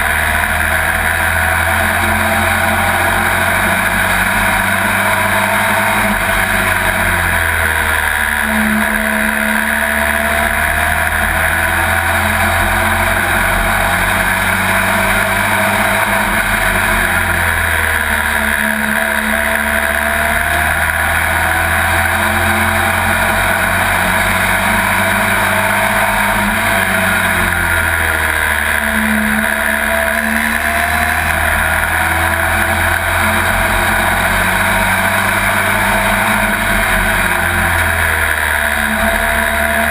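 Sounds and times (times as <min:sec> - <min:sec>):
race truck engine running hard: 0:00.0 - 0:39.9.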